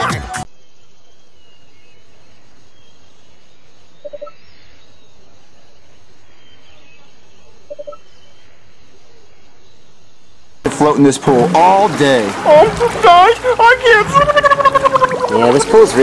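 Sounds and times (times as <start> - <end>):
faint high bird chirps: 0.4 - 10.5.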